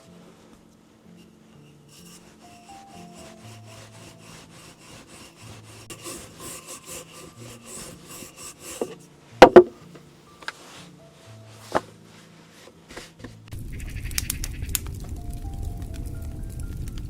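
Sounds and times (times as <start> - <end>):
hand saw cutting wood: 1.8 - 9.7
loud knocks: 9.4 - 9.8.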